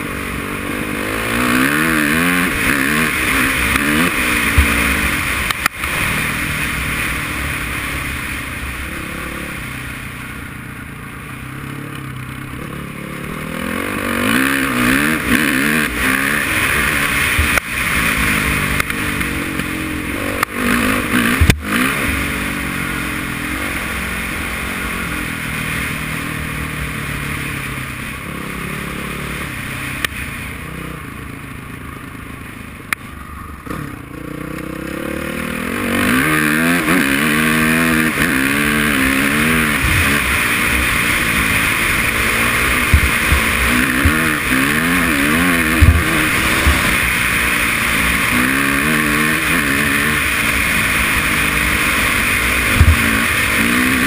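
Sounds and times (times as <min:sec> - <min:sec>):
dirt bike engine revving: 0:00.0 - 0:32.4, 0:33.0 - 0:54.0
sharp knocks: 0:42.9 - 0:44.3, 0:45.7 - 0:46.9.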